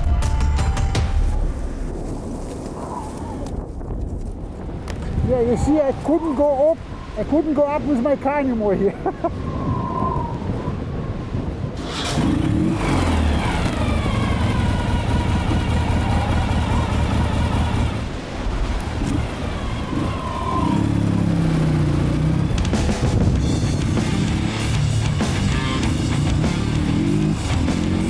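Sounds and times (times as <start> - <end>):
motorcycle engine revving: 11.8 - 28.0.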